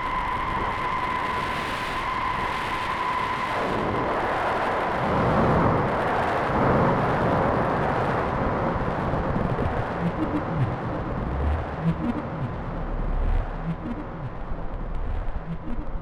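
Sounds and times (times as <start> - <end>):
rumbling synthesizer wash: 9.4 - 16.0
held high synthesizer tone: 10.0 - 16.0.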